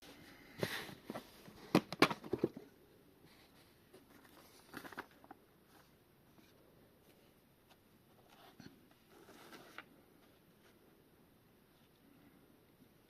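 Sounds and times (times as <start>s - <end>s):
packaging rustling: 4.1s - 5.4s.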